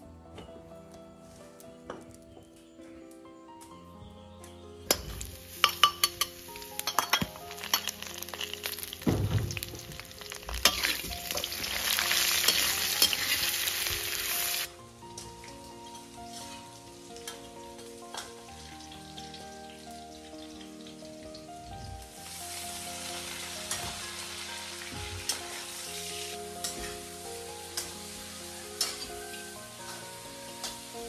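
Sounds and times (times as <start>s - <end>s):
metal ladle clinking on wok: 4.9s - 8.0s, 10.6s - 11.5s
meat sizzling in a wok: 4.9s - 31.0s.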